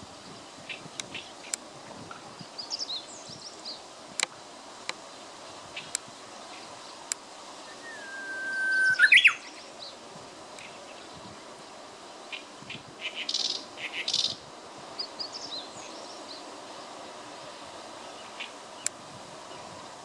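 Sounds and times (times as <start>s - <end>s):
bush warbler singing: 0.2s - 3.9s, 4.9s - 19.9s
faint high chirps: 7.6s - 9.7s.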